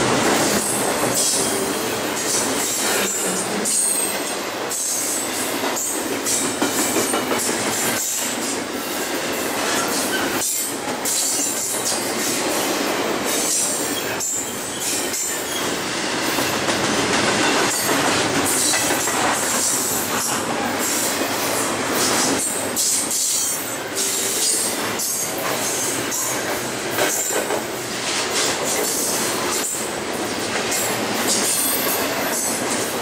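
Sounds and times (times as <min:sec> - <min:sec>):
freight train rumbling on rails: 0:00.0 - 0:33.0
high wheel squeal: 0:01.2 - 0:04.2.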